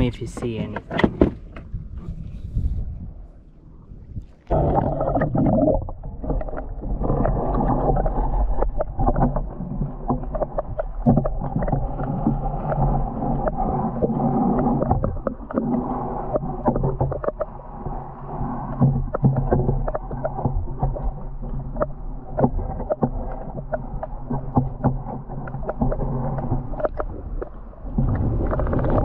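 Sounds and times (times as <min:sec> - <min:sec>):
underwater water rushing and gurgling: 0:00.0 - 0:29.0
knocks and clicks: 0:00.1 - 0:01.7.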